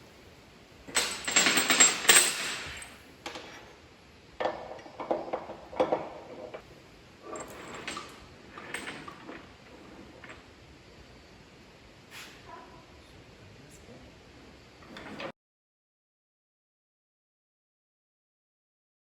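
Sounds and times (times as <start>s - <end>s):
metal tools clattering and clinking: 0.9s - 3.7s, 7.2s - 10.4s.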